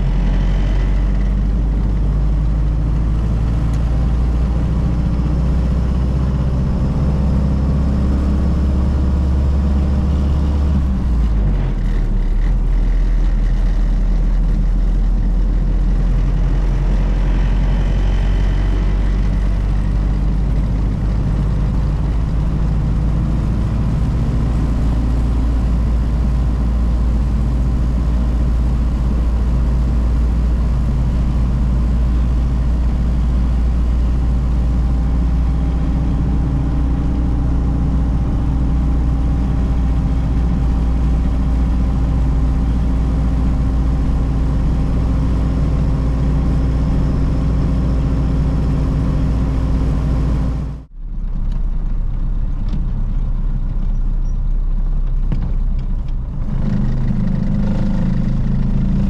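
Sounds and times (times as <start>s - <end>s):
car engine running: 0.0s - 59.0s
road noise: 0.0s - 59.0s.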